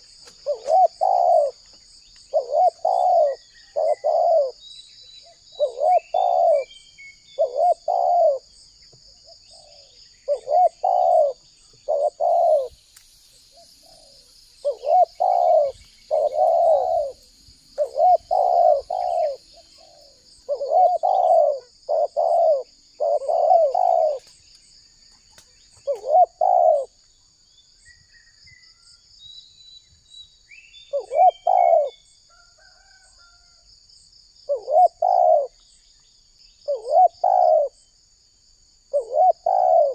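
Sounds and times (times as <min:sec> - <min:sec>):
dove cooing: 0:00.0 - 0:01.6, 0:02.3 - 0:04.6, 0:05.3 - 0:08.5, 0:09.3 - 0:12.8, 0:13.5 - 0:17.2, 0:17.8 - 0:24.4, 0:25.8 - 0:27.0, 0:30.9 - 0:32.0, 0:34.5 - 0:35.6, 0:36.7 - 0:37.8, 0:38.9 - 0:39.9.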